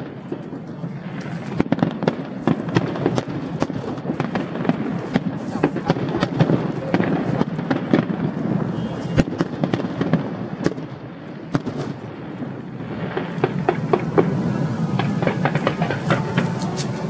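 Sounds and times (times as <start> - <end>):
continuous rumble: 0.0 - 17.0
fireworks bangs and crackles: 0.0 - 17.0.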